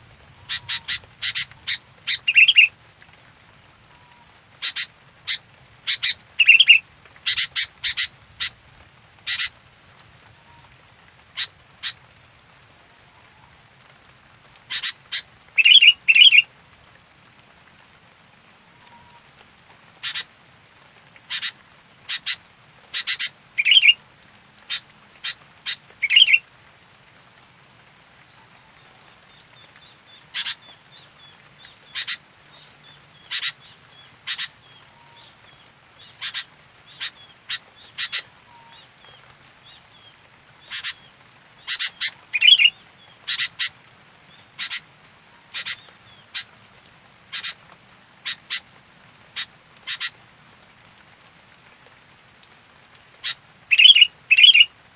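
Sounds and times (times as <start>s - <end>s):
louder longer bird calls: 0.4s - 2.7s, 3.9s - 8.6s, 14.7s - 16.5s, 21.3s - 24.0s, 24.7s - 26.4s, 33.1s - 43.7s, 53.2s - 54.7s
bird chirping: 0.5s - 2.7s, 4.6s - 8.5s, 15.6s - 16.4s, 23.0s - 24.0s, 24.7s - 26.4s, 37.9s - 43.7s, 53.7s - 54.7s.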